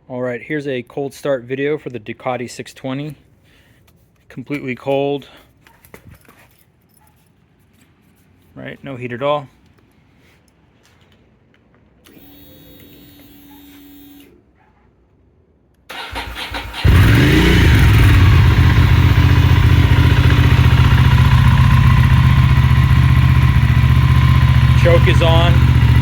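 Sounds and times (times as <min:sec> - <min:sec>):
engine starter cranking: 0:15.9 - 0:18.9
motorcycle engine idling: 0:15.9 - 0:26.0.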